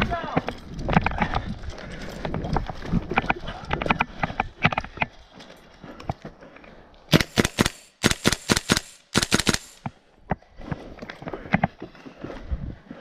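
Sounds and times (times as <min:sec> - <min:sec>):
airsoft rifle firing bursts: 0:07.1 - 0:09.9.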